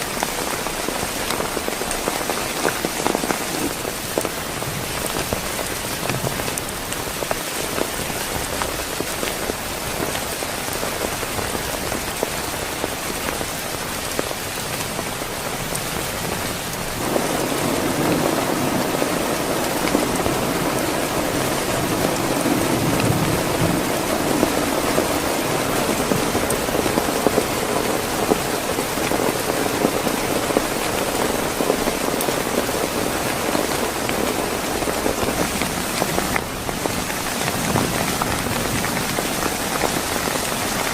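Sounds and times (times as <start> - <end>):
heavy rain falling: 0.0 - 40.9
thunder rumbling: 15.7 - 40.9.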